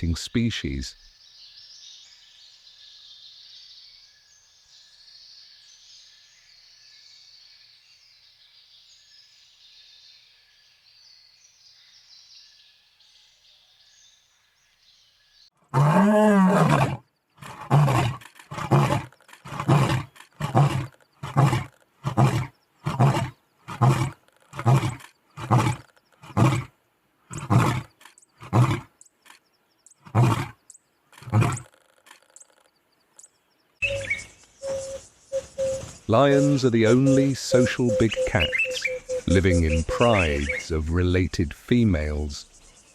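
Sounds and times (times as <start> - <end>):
birds: 0.0 - 42.9
lion roaring: 15.7 - 26.7, 27.3 - 28.9, 30.0 - 30.6, 31.2 - 31.9
insects: 29.0 - 40.7.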